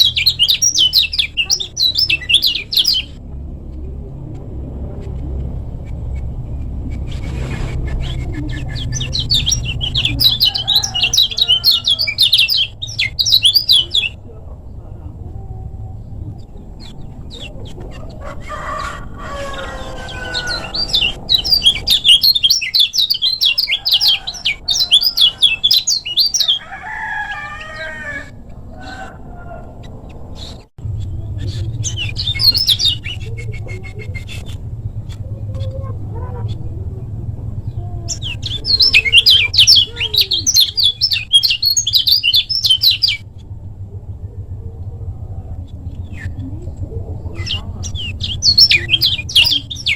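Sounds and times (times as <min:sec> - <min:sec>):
bird singing high chirps: 0:00.0 - 0:03.2, 0:07.8 - 0:14.3, 0:19.3 - 0:28.3, 0:30.0 - 0:34.6, 0:37.7 - 0:43.3, 0:47.3 - 0:49.9
bird drawn-out calls: 0:07.0 - 0:14.2, 0:17.3 - 0:34.8.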